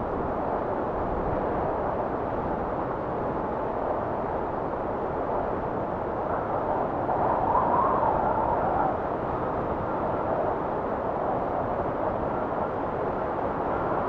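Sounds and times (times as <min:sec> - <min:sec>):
blizzard wind rushing: 0:00.0 - 0:14.0.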